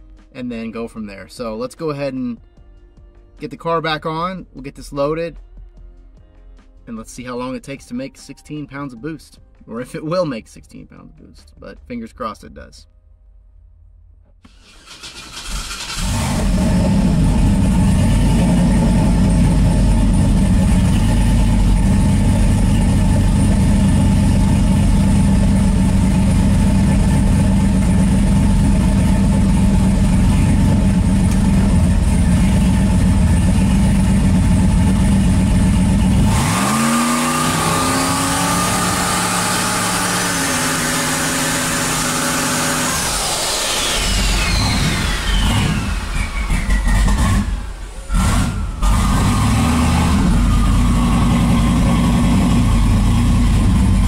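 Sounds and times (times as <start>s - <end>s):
drag engine running: 14.5s - 54.0s
turbo whine: 15.9s - 54.0s.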